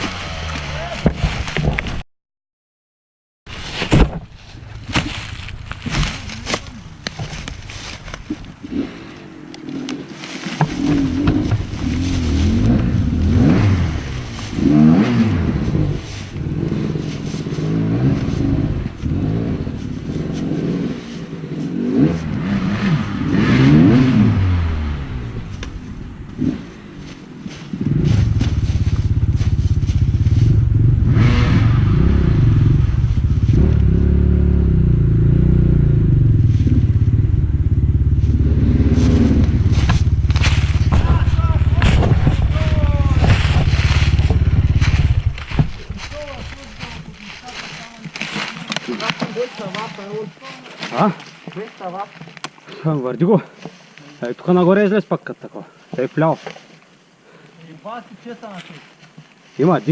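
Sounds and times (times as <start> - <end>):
dirt bike engine revving: 0.0 - 1.4, 4.6 - 51.2.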